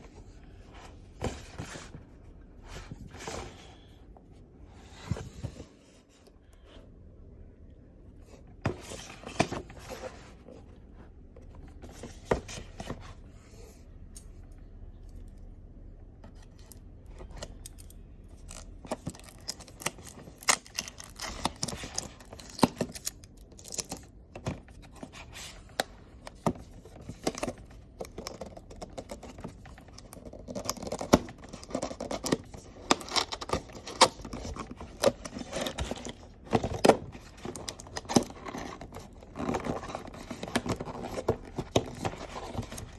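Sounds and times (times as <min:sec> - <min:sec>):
hands opening product packaging: 0:17.3 - 0:24.2, 0:26.8 - 0:42.9
box scraping: 0:31.4 - 0:42.9.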